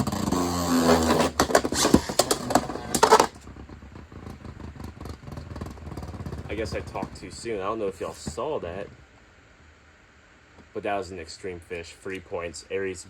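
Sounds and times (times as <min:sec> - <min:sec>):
spinning tops whirring and clacking: 0:00.0 - 0:03.5
faint rattles: 0:00.0 - 0:09.1.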